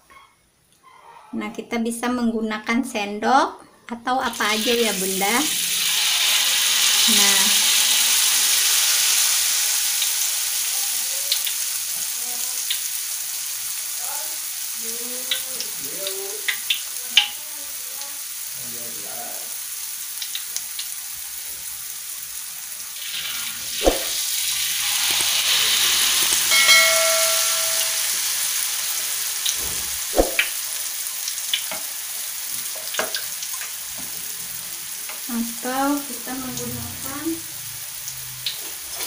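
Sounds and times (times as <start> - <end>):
oil sizzling in a wok: 4.2 - 39.0
utensil tapping wok: 25.0 - 28.1.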